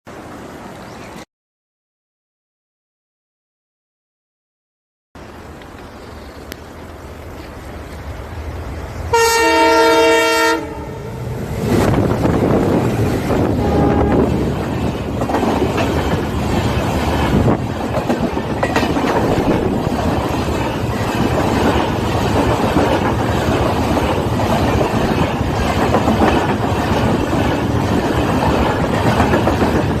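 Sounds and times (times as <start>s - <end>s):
train wheels rumbling on rails: 5.2s - 30.0s
train horn: 9.1s - 11.2s, 13.5s - 14.4s
clickety-clack over rail joints: 11.6s - 30.0s.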